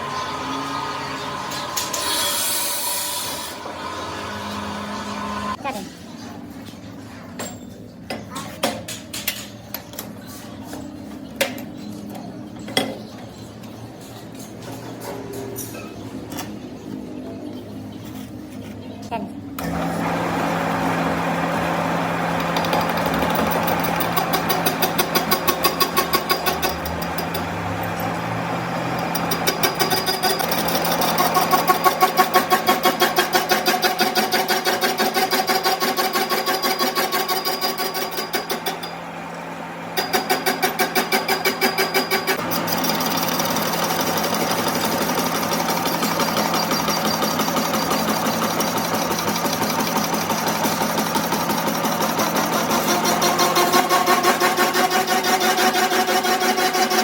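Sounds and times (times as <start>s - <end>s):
motor-driven machine running: 0.0s - 5.6s, 19.6s - 33.6s, 37.2s - 55.9s.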